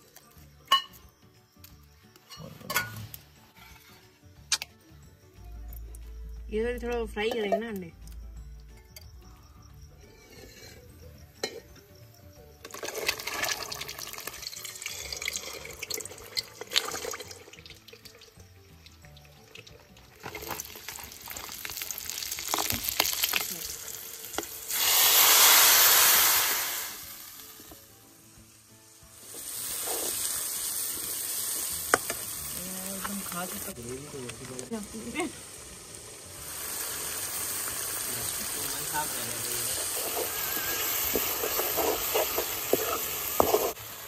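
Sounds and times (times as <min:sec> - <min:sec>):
spices sizzling in hot oil: 0:00.0 - 0:05.4, 0:06.0 - 0:44.0
ladle clinking and tapping: 0:00.7 - 0:01.0.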